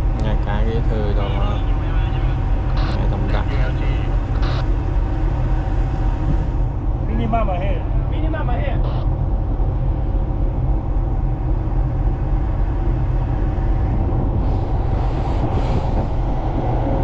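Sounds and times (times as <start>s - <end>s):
faint steady hum: 0.0s - 17.0s
ship engine rumbling: 0.0s - 17.0s.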